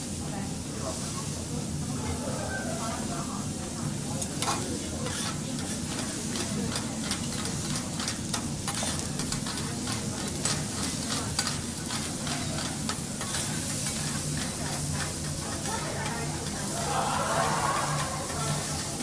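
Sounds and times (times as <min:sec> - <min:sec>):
food sizzling on a griddle: 0:00.0 - 0:19.0
metal spatulas scraping steel plate: 0:04.4 - 0:19.0.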